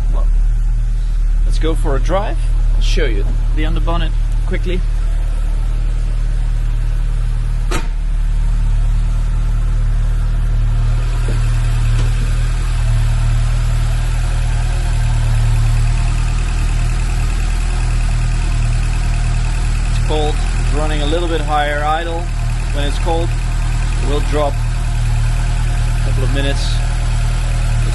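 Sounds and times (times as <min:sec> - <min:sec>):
car engine idling: 0:00.0 - 0:27.9.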